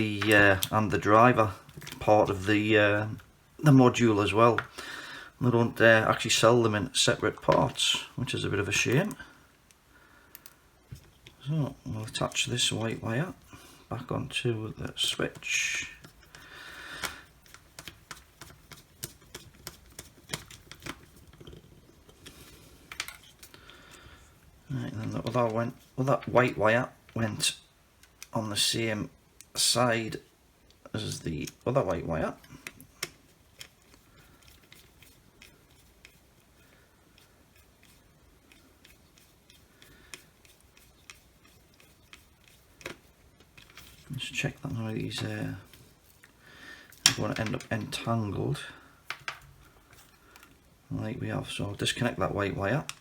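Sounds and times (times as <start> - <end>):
small clicks and taps: 9.0 - 11.4, 15.3 - 23.6, 28.0 - 28.4, 49.0 - 50.6
handling rustling: 10.4 - 27.2, 30.7 - 53.0.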